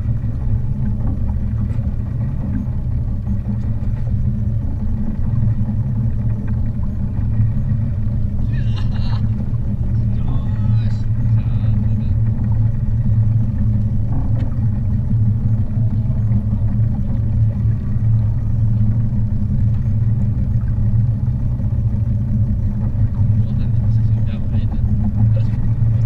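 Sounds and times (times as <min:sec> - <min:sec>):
outboard engine drone: 0:00.0 - 0:26.0.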